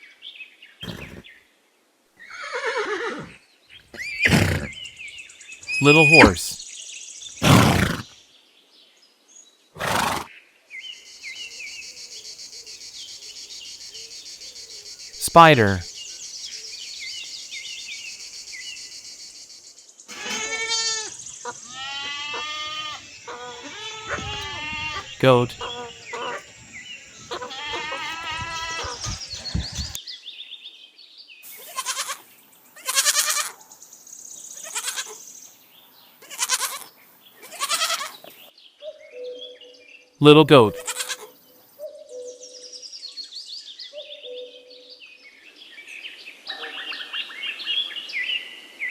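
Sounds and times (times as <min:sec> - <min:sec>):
small birds chirping: 0:00.8 - 0:01.4, 0:10.8 - 0:30.4
foal snorting: 0:04.2 - 0:04.8, 0:07.4 - 0:08.0
insects buzzing: 0:11.1 - 0:30.0
goat bleating: 0:20.1 - 0:21.1, 0:21.7 - 0:26.4, 0:27.2 - 0:30.0, 0:31.7 - 0:32.2, 0:32.8 - 0:33.5, 0:36.2 - 0:36.8, 0:37.5 - 0:38.2, 0:40.6 - 0:41.3.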